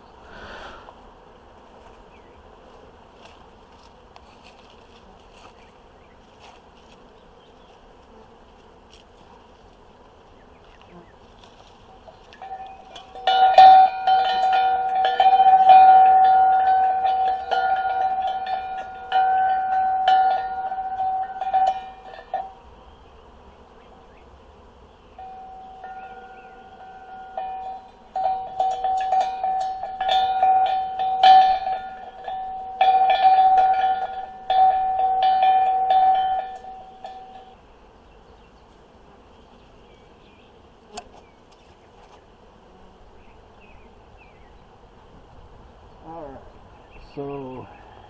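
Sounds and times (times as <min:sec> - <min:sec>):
bees humming: 0:00.0 - 0:48.0
hand bell clanging: 0:12.4 - 0:22.5, 0:25.2 - 0:37.6.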